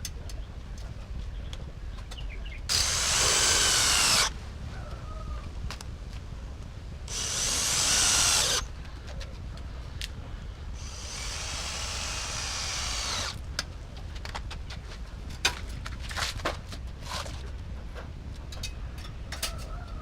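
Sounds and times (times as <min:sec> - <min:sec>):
handheld power tool running: 0:02.7 - 0:04.3, 0:07.1 - 0:08.7, 0:10.8 - 0:13.4.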